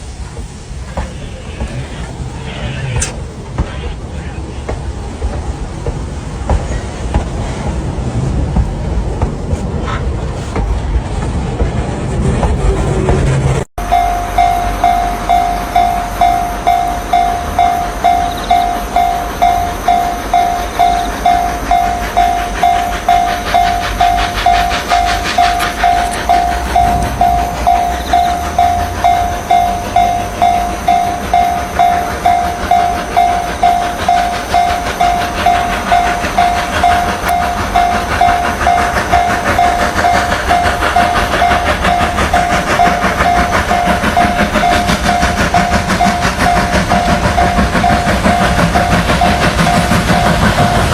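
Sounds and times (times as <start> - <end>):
train running on rails: 0.0 - 50.9
warning bell ringing: 13.8 - 50.9.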